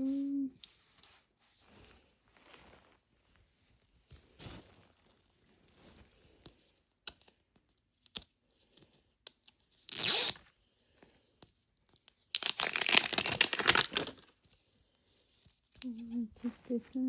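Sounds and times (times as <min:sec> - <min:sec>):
plastic wrapping tearing: 0:09.9 - 0:10.4, 0:12.3 - 0:14.3.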